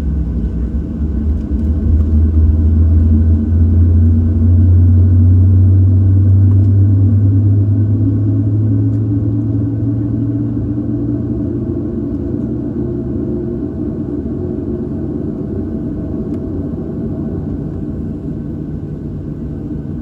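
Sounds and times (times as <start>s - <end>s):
aircraft cabin rumble and hum: 0.0s - 20.0s.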